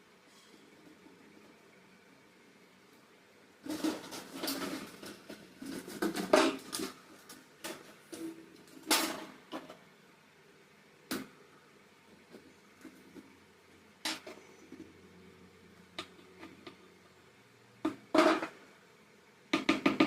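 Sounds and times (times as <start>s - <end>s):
objects rustling and clattering: 3.6s - 9.9s, 12.1s - 15.2s.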